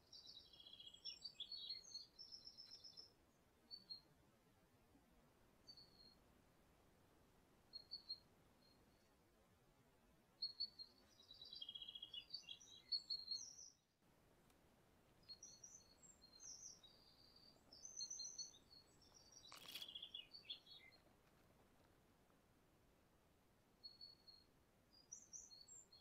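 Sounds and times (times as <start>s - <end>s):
songbird twittering: 0.0s - 4.1s, 10.4s - 13.9s, 15.2s - 21.0s, 23.8s - 26.0s.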